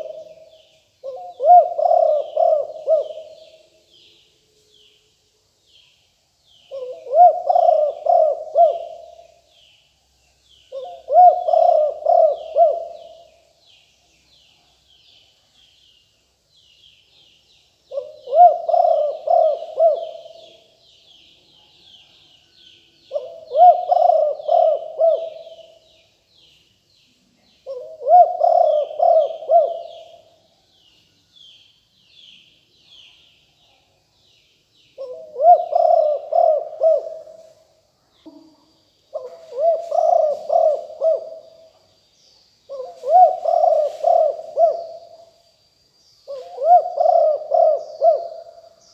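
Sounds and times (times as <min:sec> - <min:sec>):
dove cooing: 0:00.0 - 0:03.7, 0:06.7 - 0:09.4, 0:10.7 - 0:13.4, 0:17.9 - 0:20.8, 0:23.1 - 0:25.8, 0:27.6 - 0:30.4, 0:35.0 - 0:37.6, 0:39.1 - 0:41.7, 0:42.7 - 0:45.3, 0:46.3 - 0:48.8
small birds chirping: 0:00.0 - 0:48.9.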